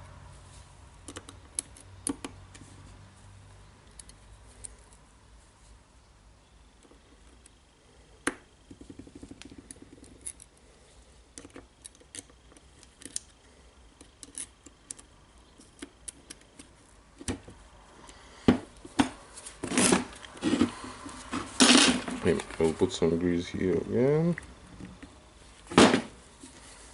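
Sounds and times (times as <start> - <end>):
small metal parts clicking: 9.1 - 10.6, 14.0 - 16.7.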